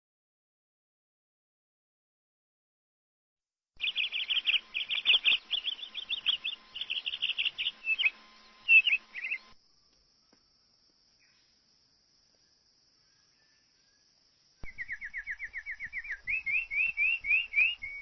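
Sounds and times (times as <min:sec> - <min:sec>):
bird chirping: 0:03.8 - 0:10.5, 0:11.1 - 0:18.0.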